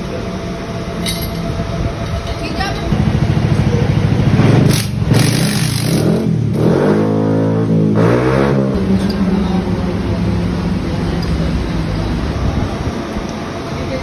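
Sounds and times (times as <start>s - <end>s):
motorcycle engine revving: 3.0s - 11.0s.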